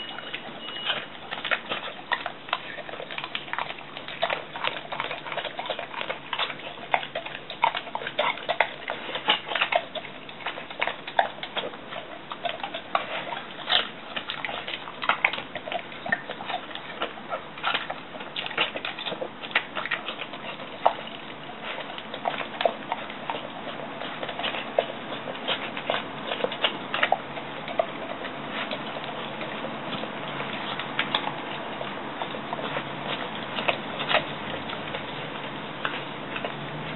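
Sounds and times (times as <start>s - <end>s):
mouth clicking against bowl: 0.0s - 36.9s
pet crunching food: 0.0s - 36.9s.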